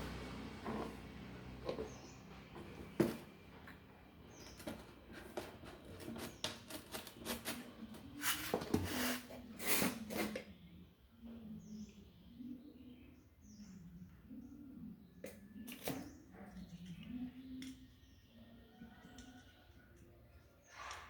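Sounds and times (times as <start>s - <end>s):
fan parts clicking and knocking: 0.0s - 8.9s.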